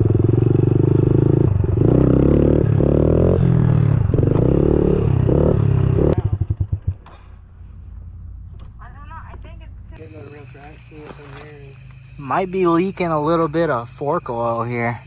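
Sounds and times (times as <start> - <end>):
motorbike engine revving: 0.0 - 7.2.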